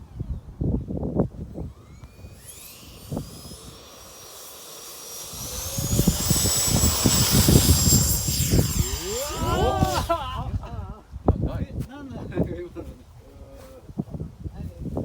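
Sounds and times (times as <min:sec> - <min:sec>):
model jet engine whine: 0:01.2 - 0:10.6
wind buffeting microphone: 0:05.1 - 0:15.0.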